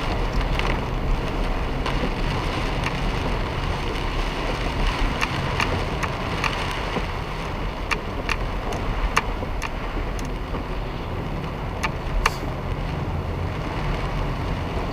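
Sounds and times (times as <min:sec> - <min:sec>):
road and rain noise: 0:00.0 - 0:14.9
sharp ticks: 0:05.1 - 0:07.1, 0:07.8 - 0:10.7, 0:11.8 - 0:12.4.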